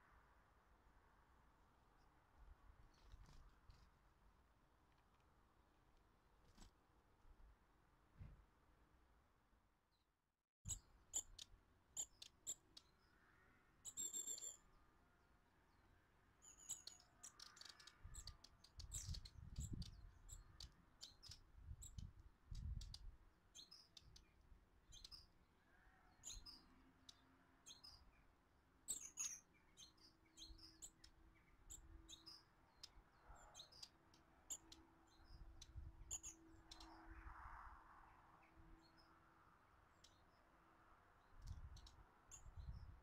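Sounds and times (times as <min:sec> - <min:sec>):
small birds chirping and tweeting: 0:02.8 - 0:04.2, 0:10.7 - 0:43.0.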